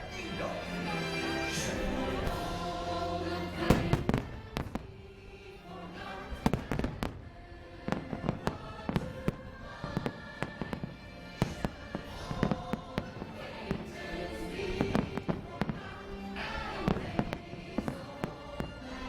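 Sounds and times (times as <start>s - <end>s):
music: 0.0s - 19.0s
fireworks bangs: 3.6s - 5.2s, 6.4s - 19.0s.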